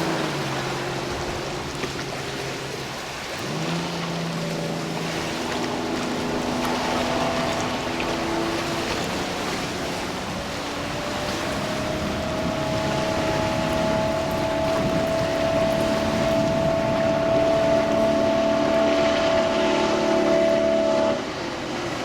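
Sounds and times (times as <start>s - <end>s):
motorboat engine running: 0.0s - 22.0s
water noise: 0.0s - 22.0s
wind noise: 4.8s - 22.0s.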